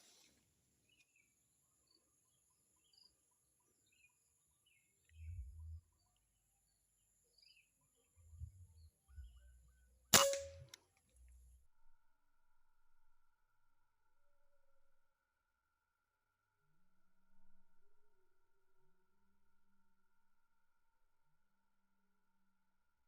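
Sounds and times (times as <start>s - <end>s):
air rifle shot: 10.2s - 10.7s.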